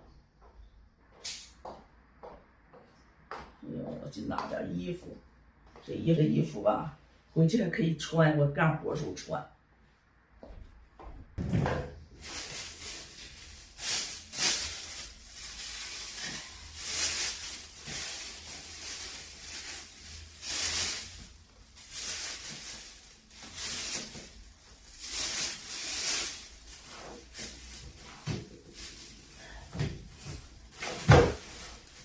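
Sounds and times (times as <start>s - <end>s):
clothes rustling: 12.1s - 32.0s.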